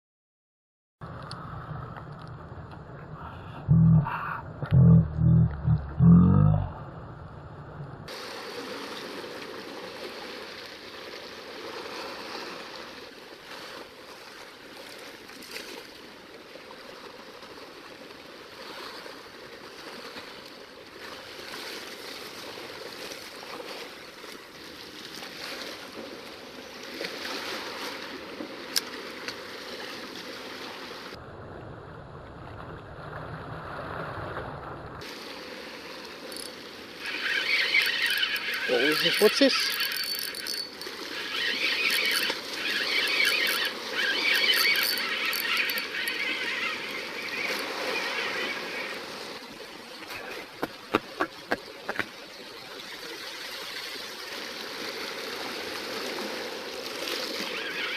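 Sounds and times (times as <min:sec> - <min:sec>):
sea water lapping on rocks: 0:08.1 - 0:31.2, 0:33.0 - 0:57.6.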